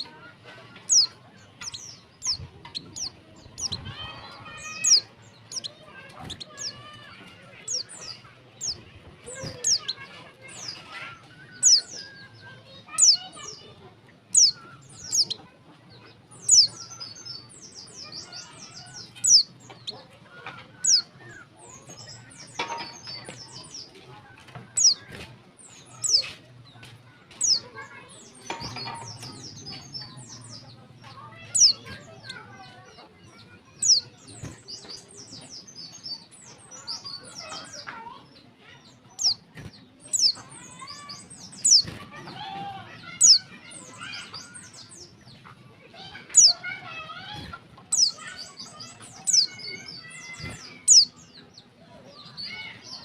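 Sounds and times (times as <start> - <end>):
rapid high bird twittering: 0.8 - 13.6, 14.3 - 20.0, 20.8 - 24.0, 24.7 - 26.4, 27.3 - 37.9, 38.8 - 42.0, 46.0 - 51.6.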